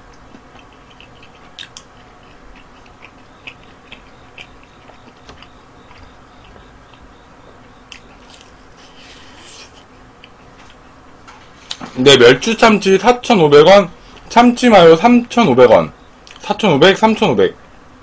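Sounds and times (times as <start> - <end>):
man chewing food: 0.0 - 12.0, 14.0 - 14.3.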